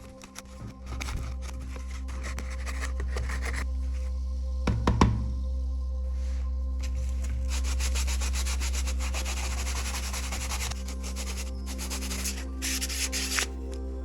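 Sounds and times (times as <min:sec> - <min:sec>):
hand sanding strokes: 0:06.8 - 0:13.6.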